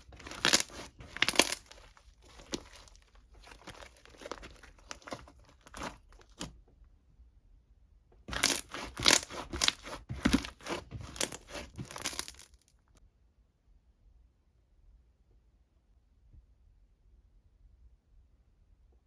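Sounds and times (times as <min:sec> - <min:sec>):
crackling and tearing: 0:00.0 - 0:06.5, 0:08.3 - 0:12.7
crinkling and rustling: 0:00.0 - 0:06.5, 0:08.3 - 0:12.7.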